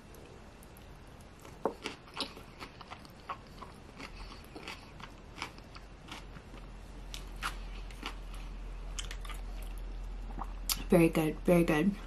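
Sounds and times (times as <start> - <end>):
person chewing food: 0.1 - 10.8.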